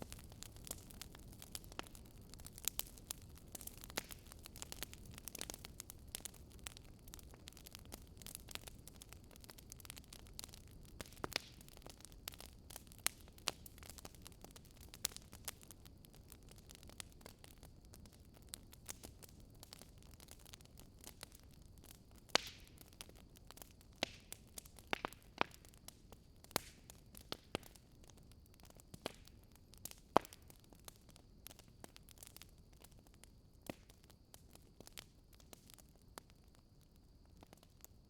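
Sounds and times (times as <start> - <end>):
low steady hiss: 0.0 - 38.0
wood fire crackling and popping: 0.0 - 38.0.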